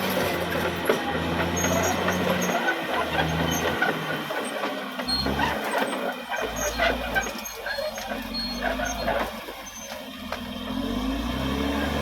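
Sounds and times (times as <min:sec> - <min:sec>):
bulldozer diesel engine under load: 0:00.0 - 0:12.0
short high squeaks: 0:05.0 - 0:10.0.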